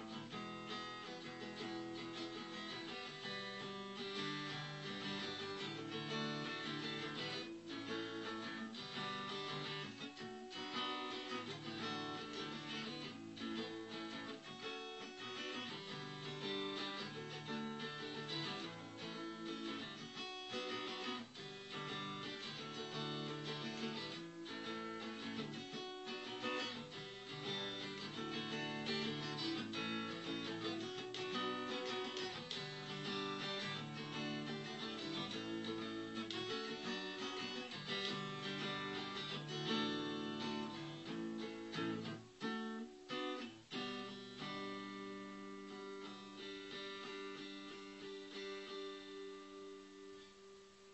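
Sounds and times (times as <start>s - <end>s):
acoustic guitar strumming chords: 0.0s - 50.7s.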